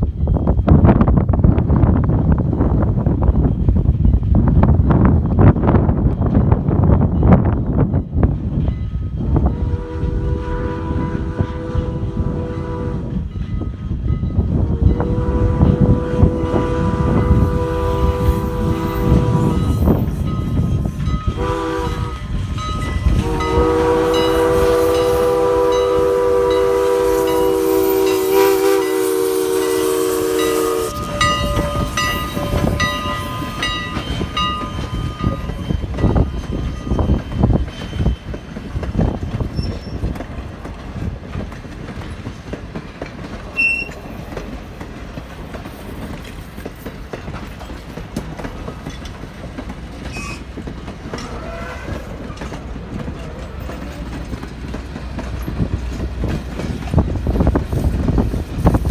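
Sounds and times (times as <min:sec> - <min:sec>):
train wheels clattering: 0:03.3 - 0:58.9
steam locomotive whistle: 0:09.4 - 0:13.2, 0:14.6 - 0:38.1, 0:43.6 - 0:44.2, 0:50.0 - 0:53.0.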